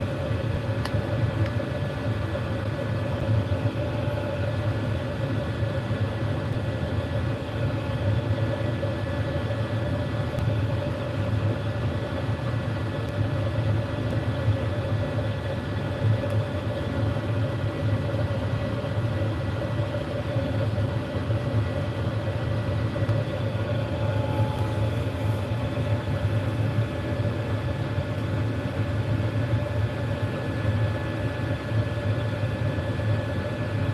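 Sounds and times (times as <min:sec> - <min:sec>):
constant hum: 0:00.0 - 0:33.9.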